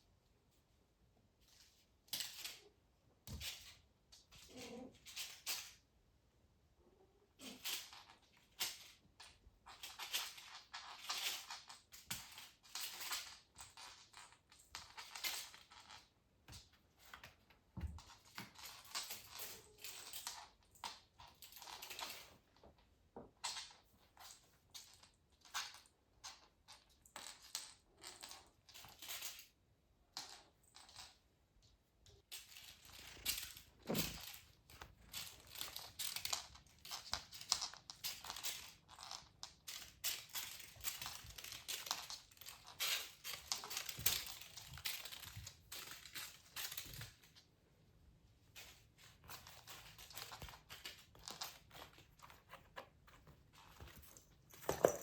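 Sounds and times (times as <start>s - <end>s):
crinkly toys rustling: 32.2s - 47.4s, 48.5s - 55.0s.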